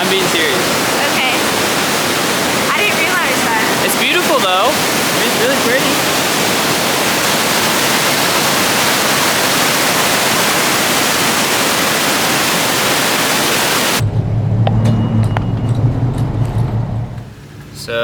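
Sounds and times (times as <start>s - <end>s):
rush of falling water: 0.0s - 14.0s
vehicle cabin hum: 14.0s - 18.0s.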